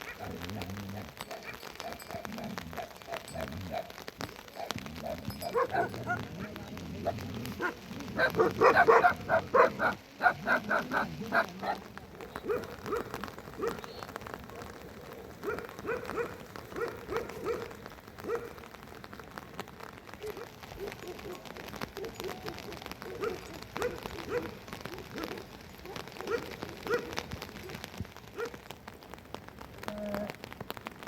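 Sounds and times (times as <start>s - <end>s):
dog barking: 0.0s - 6.5s, 7.1s - 13.9s, 15.4s - 18.6s, 20.2s - 27.8s, 28.4s - 28.6s
rain falling: 0.0s - 31.0s.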